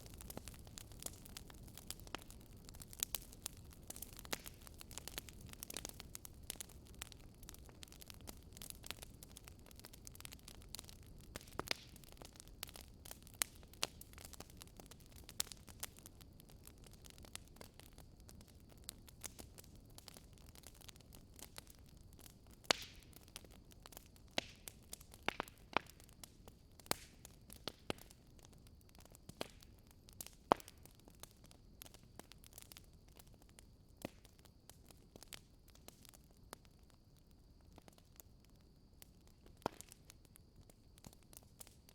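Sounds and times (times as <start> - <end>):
wood fire crackling: 0.0 - 41.9.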